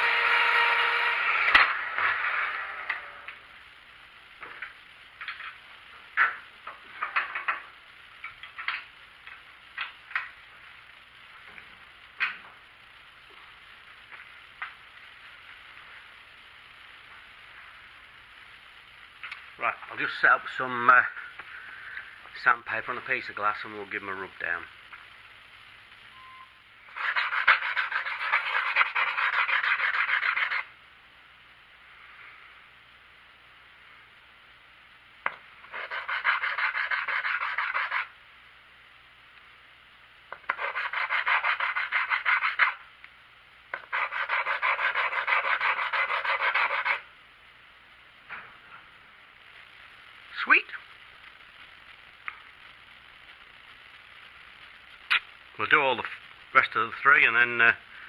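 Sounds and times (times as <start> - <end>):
metal nut scrubbing on abrasive paper: 26.9 - 30.7, 35.6 - 38.1, 40.4 - 42.8, 43.8 - 47.1.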